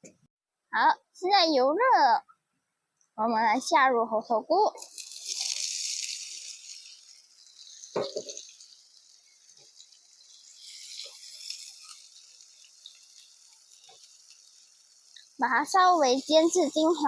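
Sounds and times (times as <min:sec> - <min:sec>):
mushroom sizzling in hot oil: 0:03.6 - 0:17.0.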